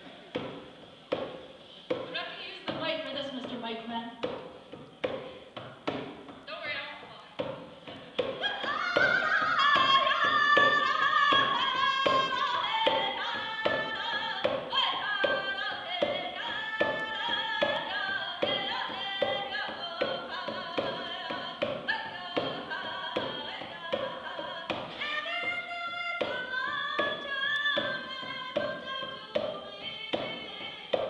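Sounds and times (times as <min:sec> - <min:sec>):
hand drum beat: 0:07.4 - 0:31.0
woman singing in high voice: 0:08.2 - 0:31.0.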